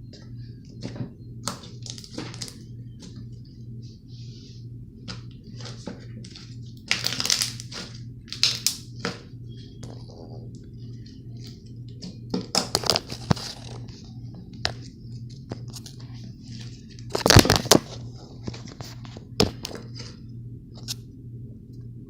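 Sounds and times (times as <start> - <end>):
slime crackling and popping: 1.4 - 2.6, 6.8 - 8.9, 17.0 - 18.0.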